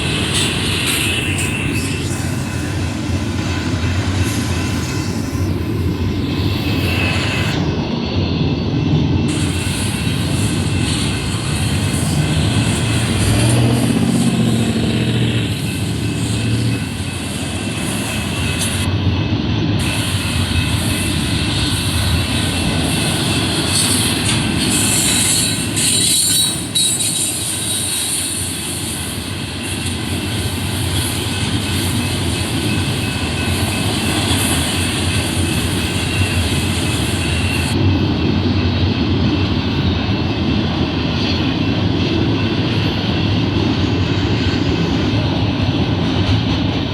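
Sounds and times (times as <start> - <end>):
train wheels rolling on rails: 0.0 - 46.9.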